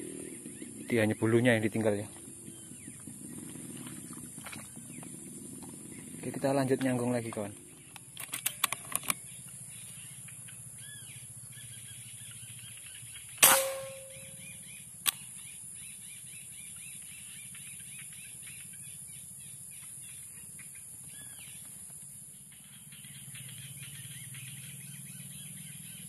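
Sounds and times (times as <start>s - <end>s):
birds chirping faintly: 0.0s - 26.0s
air rifle shot: 13.4s - 14.4s.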